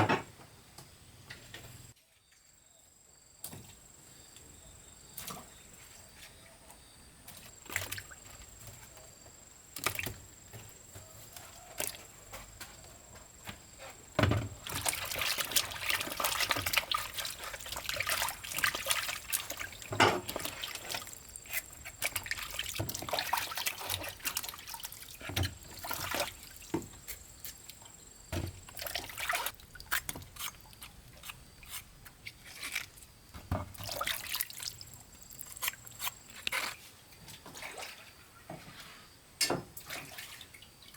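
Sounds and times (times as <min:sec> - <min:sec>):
water trickling and splashing: 0:07.3 - 0:09.0, 0:09.8 - 0:39.0, 0:39.6 - 0:40.9.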